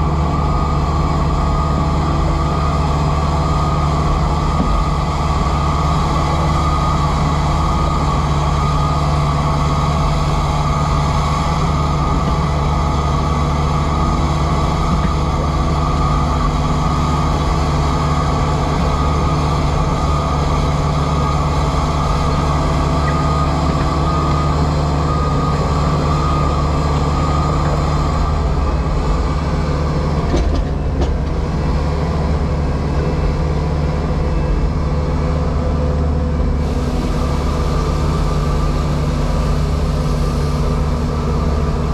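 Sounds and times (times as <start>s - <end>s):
diesel engine low drone: 0.0s - 41.9s
hydraulic whine: 0.0s - 41.9s.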